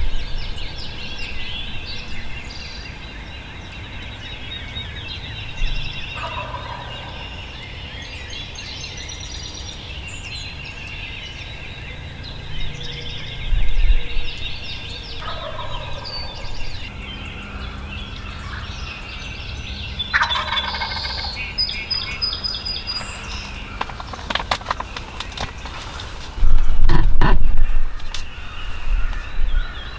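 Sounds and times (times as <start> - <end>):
small birds chirping: 0.0 - 29.9
turkey gobbling: 6.2 - 7.1, 15.2 - 16.4, 20.1 - 26.0.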